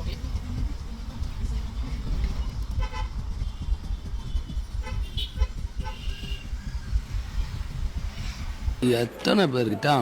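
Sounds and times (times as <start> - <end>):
traffic rumble: 0.0 - 8.9
vehicle horn toots: 2.7 - 6.6.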